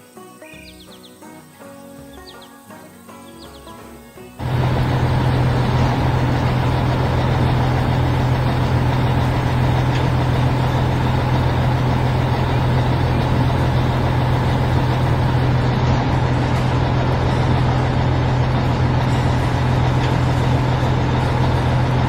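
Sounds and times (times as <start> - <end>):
heavy vehicle engine running: 4.4 - 22.0.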